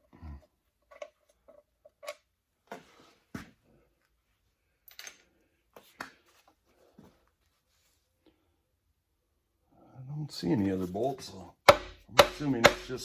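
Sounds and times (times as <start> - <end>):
sharp knocks: 11.7 - 13.0.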